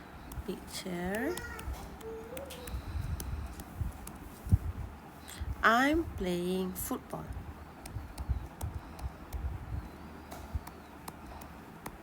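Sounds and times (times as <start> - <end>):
faint writing clicks: 0.2 - 4.7, 7.3 - 12.0
low thumps and rumble: 7.3 - 12.0.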